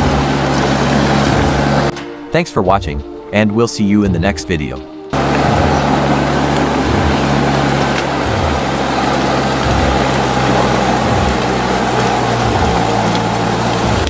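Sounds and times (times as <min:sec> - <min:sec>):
heavy diesel engine under load: 0:00.0 - 0:02.1, 0:05.2 - 0:14.0.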